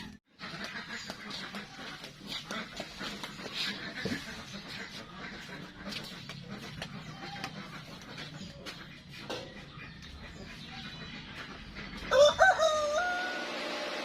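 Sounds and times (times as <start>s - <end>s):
rooster crowing: 12.1s - 13.8s.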